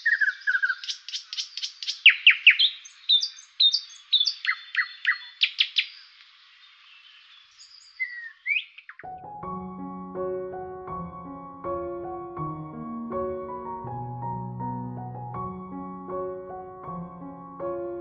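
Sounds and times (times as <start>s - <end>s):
birds chirping and whistling: 0.0s - 6.2s, 6.9s - 9.2s
piano music: 9.0s - 18.0s.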